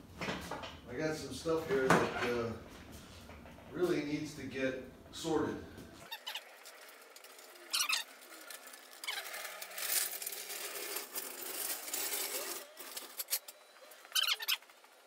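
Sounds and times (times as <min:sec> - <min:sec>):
metal tools clinking and rattling: 0:06.1 - 0:14.8.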